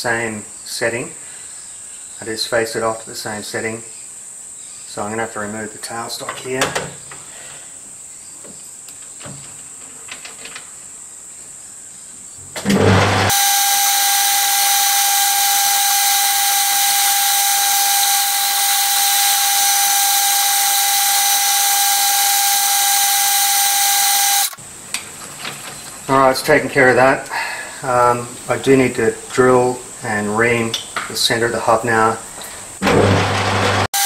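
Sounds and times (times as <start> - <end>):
metal lathe whining: 12.7 - 24.6.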